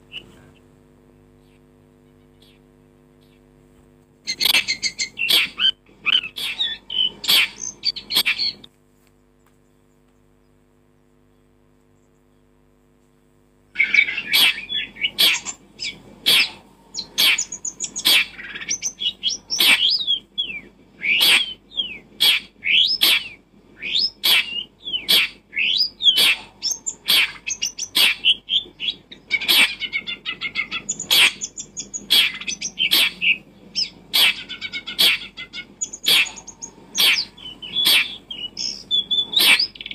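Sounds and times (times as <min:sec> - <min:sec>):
bird chirping: 0:01.4 - 0:03.5, 0:04.2 - 0:08.7, 0:09.4 - 0:39.9.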